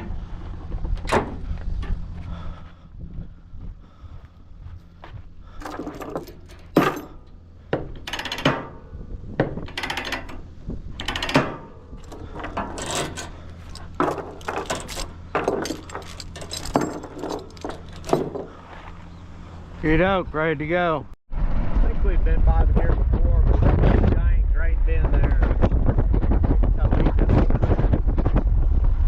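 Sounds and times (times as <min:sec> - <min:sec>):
clattering knocks and thunks: 0:00.0 - 0:02.0, 0:05.5 - 0:18.8
low engine hum: 0:00.0 - 0:29.0.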